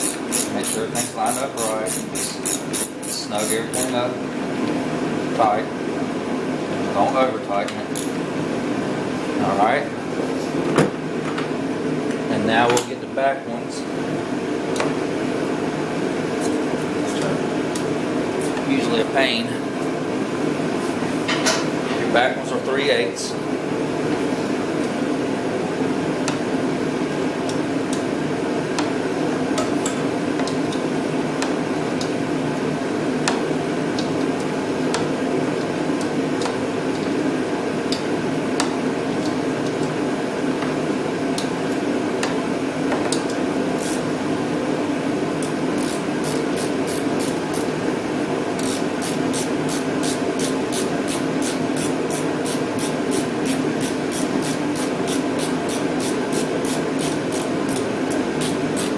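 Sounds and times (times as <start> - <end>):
ratchet wrench clicks: 0.0 - 4.0, 8.0 - 8.2, 43.8 - 44.0, 45.4 - 47.7, 48.6 - 58.9
steady hum: 0.0 - 58.9.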